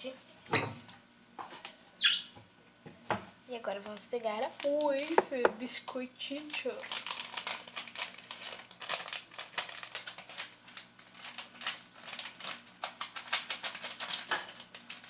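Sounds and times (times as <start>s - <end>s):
plastic packet crinkling: 3.6s - 15.0s.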